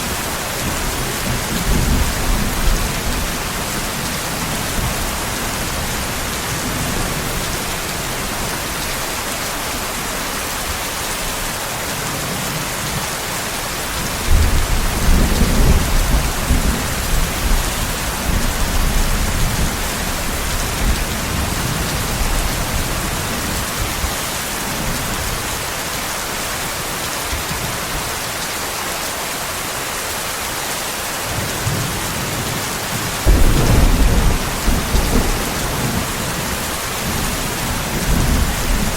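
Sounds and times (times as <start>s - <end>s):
heavy rain hissing: 0.0s - 38.9s
thunder rumbling: 33.2s - 38.9s.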